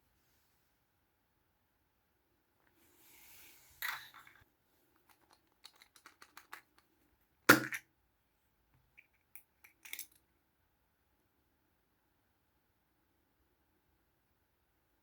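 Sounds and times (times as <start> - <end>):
plastic toys clicking and tapping: 5.0 - 6.8.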